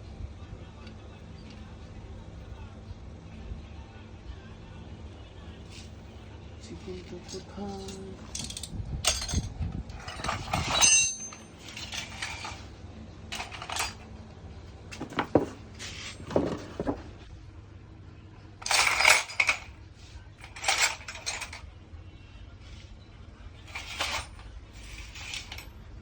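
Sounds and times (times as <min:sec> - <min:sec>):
metal tools clinking and clattering: 0:07.3 - 0:12.7, 0:13.3 - 0:14.1, 0:14.9 - 0:17.1, 0:18.6 - 0:19.8, 0:20.4 - 0:21.6, 0:23.7 - 0:25.7.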